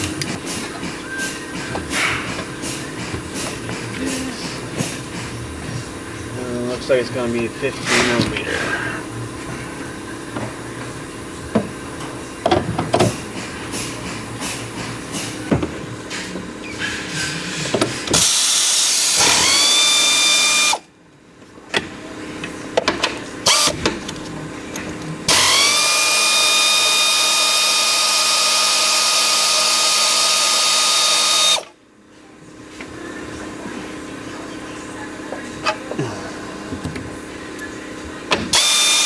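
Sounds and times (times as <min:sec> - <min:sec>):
power wrench whining: 0:18.0 - 0:20.9, 0:23.4 - 0:23.8, 0:25.3 - 0:31.7, 0:38.4 - 0:39.0.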